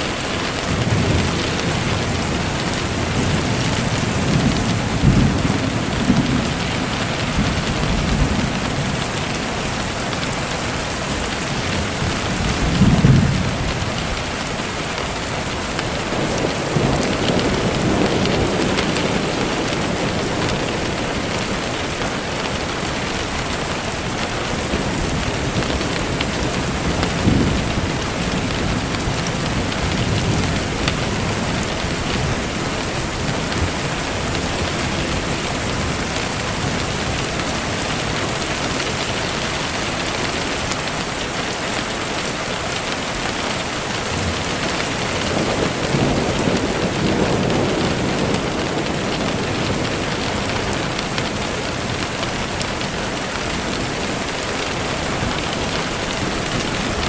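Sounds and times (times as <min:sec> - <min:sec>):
thunder rumbling: 0:00.0 - 0:41.8, 0:43.6 - 0:57.0
steady rain: 0:00.0 - 0:57.0.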